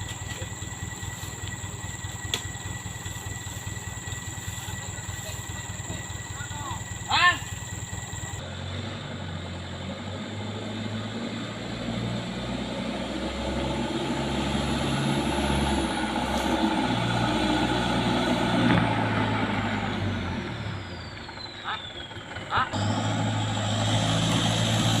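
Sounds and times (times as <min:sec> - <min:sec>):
truck engine running: 0:00.0 - 0:25.0.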